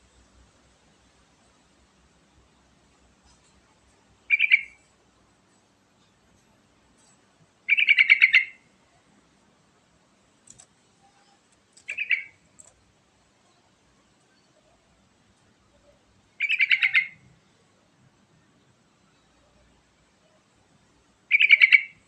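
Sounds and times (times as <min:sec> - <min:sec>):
bird singing short phrases: 0:04.3 - 0:04.8, 0:07.7 - 0:08.6, 0:11.1 - 0:12.4, 0:21.3 - 0:22.0.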